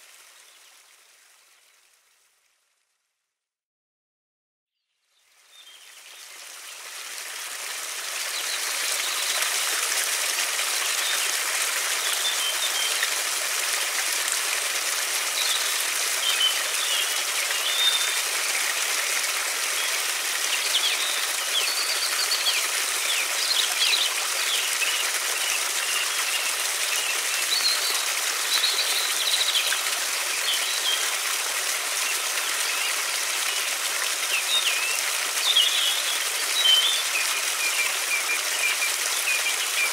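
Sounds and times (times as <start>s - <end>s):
river water rushing: 6.5s - 39.9s
small birds chirping: 19.7s - 31.2s, 34.3s - 39.9s.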